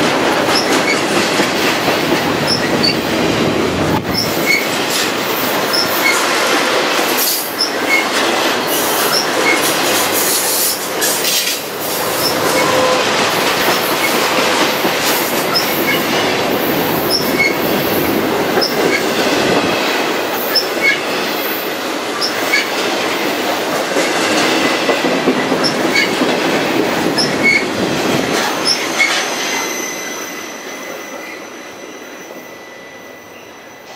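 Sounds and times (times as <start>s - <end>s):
freight train wheels rumbling: 0.0s - 33.9s
short high wheel squeaks: 11.2s - 13.1s, 17.1s - 17.7s.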